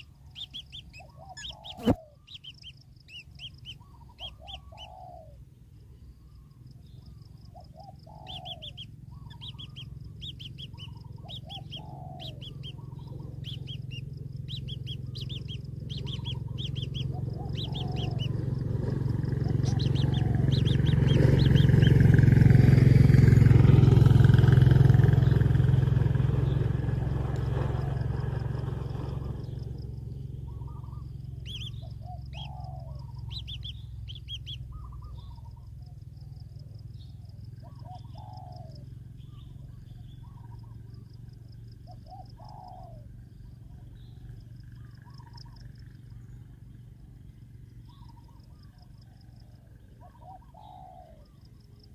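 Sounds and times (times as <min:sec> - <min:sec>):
short bird chirps: 0:00.0 - 0:05.4, 0:08.2 - 0:18.4, 0:19.4 - 0:22.0, 0:30.2 - 0:35.8
loud low rumble: 0:08.4 - 0:35.6.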